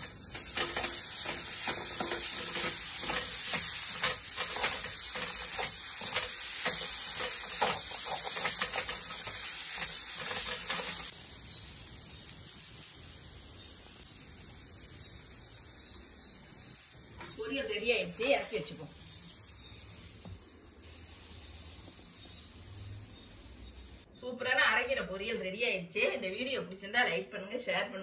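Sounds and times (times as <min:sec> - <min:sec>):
metal ladle scraping pan: 0:00.0 - 0:11.1
faint hiss: 0:00.0 - 0:24.1
greens sizzling in oil: 0:00.0 - 0:24.1.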